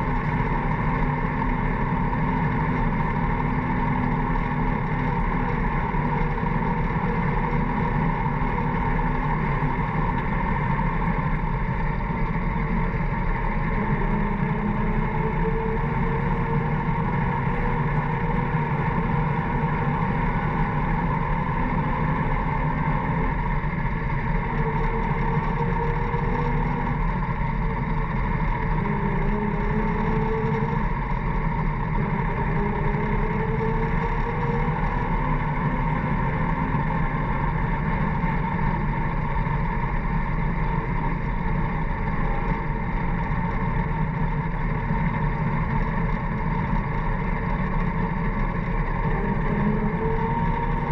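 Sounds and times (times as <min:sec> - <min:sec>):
grader engine running: 0:00.0 - 0:50.9.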